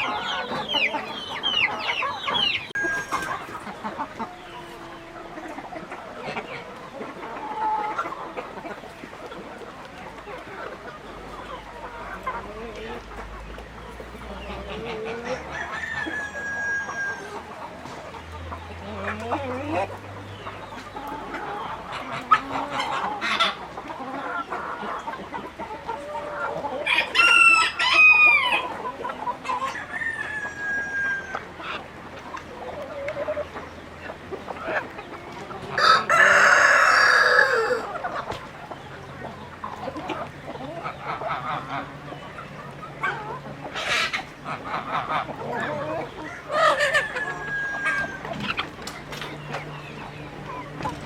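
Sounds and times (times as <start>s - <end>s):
chickens clucking: 0.0s - 51.0s
rooster crowing: 2.6s - 3.2s, 15.4s - 17.4s, 26.8s - 28.6s, 29.8s - 31.4s, 35.8s - 37.9s, 46.2s - 48.3s.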